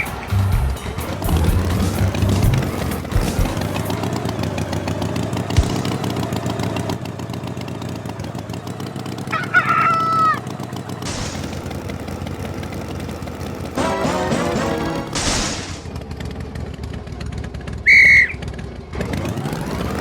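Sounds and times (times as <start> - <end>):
rooster crowing: 9.3 - 10.4.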